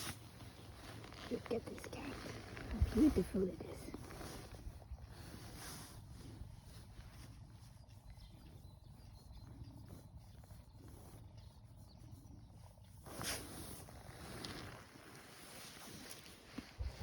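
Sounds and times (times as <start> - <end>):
rustling: 0.0 - 8.1, 12.8 - 17.0
faint bird chirps: 6.6 - 13.4.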